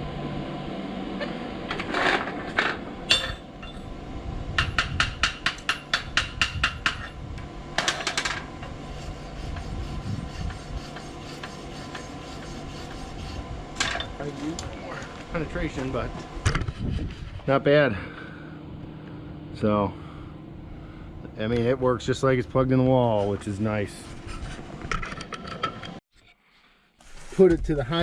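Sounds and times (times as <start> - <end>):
hammer tapping on steel: 4.6 - 7.2.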